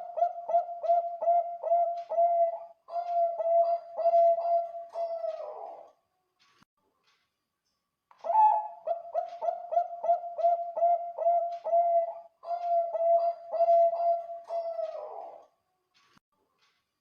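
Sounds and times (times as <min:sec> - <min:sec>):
dove cooing: 0:00.0 - 0:05.9, 0:08.2 - 0:15.4.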